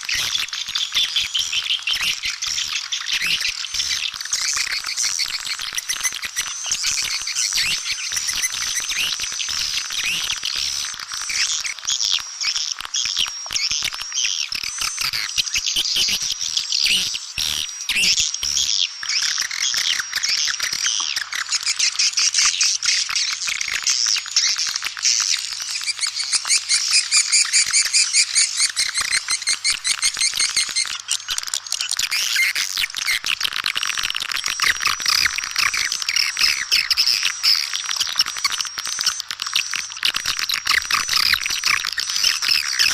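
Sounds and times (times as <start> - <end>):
swiftlets twittering: 34.0 - 42.9.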